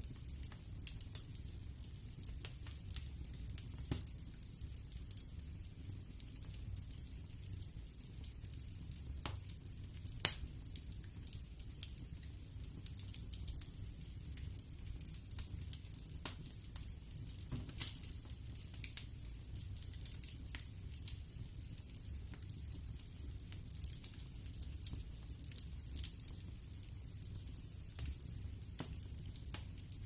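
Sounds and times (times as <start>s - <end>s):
wood fire rumbling and crackling: 0.0s - 30.0s
loud pop of fire: 10.2s - 10.5s, 17.4s - 18.3s.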